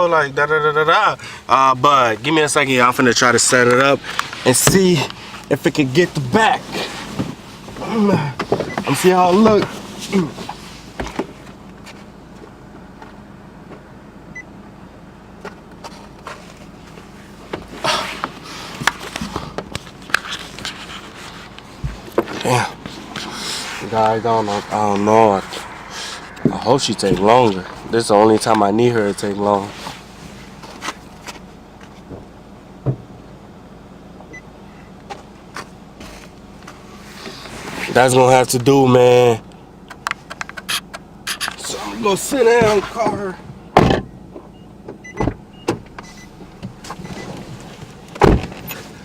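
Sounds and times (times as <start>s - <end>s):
car idling hum: 0.0s - 49.0s.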